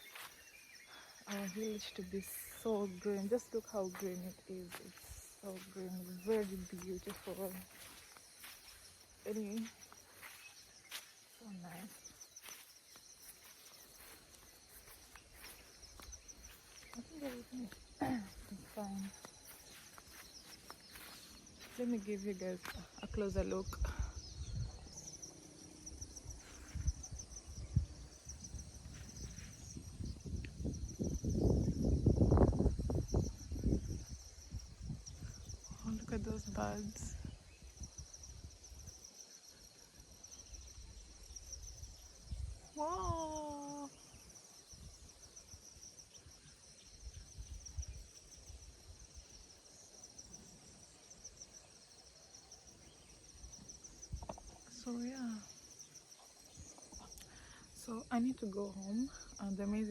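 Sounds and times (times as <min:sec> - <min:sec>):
insects trilling: 0:00.0 - 0:59.9
low rumbles on microphone: 0:26.7 - 0:37.4.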